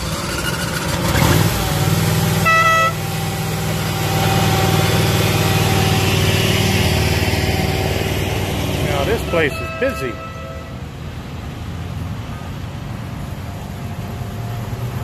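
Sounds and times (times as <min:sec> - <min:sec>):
train horn toot: 0:02.4 - 0:03.0, 0:09.0 - 0:10.8.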